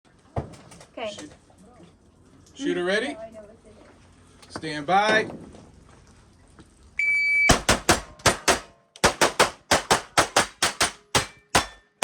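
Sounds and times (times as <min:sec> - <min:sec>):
shot timer beep: 0:07.0 - 0:07.6
rapid gunfire: 0:07.5 - 0:11.8.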